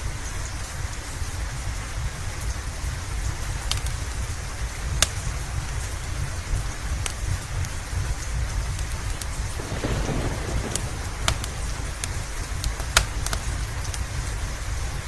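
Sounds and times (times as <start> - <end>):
steady rain: 0.0 - 15.0
wood fire popping: 3.6 - 4.0, 8.7 - 15.0
low rumble: 9.6 - 13.8.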